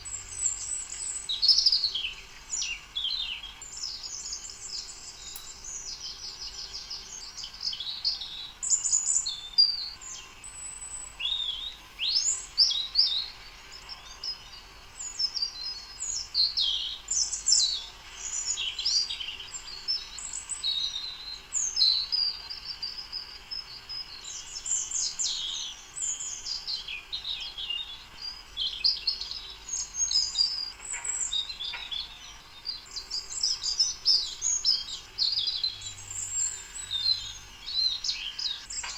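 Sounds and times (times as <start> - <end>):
birds chirping and singing: 24.6 - 38.9.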